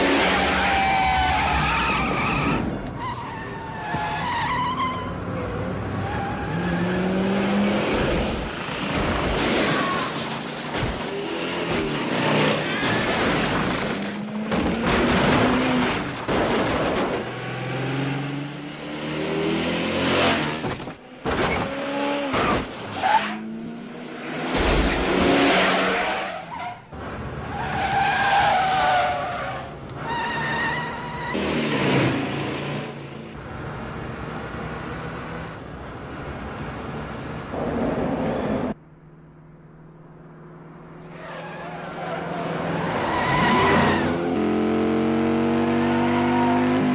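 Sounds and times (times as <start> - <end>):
engines revving: 40.2 - 46.9.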